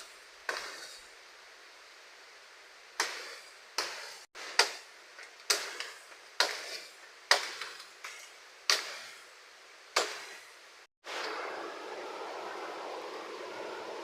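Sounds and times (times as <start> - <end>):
faint steady hiss: 0.0 - 14.0
sharp chopping blows: 3.0 - 7.9, 8.7 - 9.2, 10.0 - 10.5.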